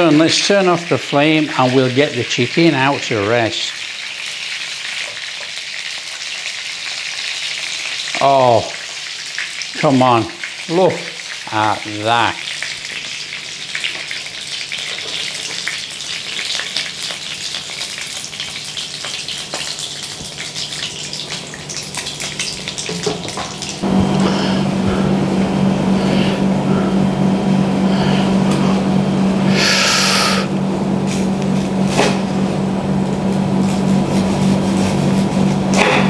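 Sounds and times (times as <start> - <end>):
chicken frying in oil: 0.0 - 23.8, 29.5 - 36.0
steady low hum: 23.7 - 36.0.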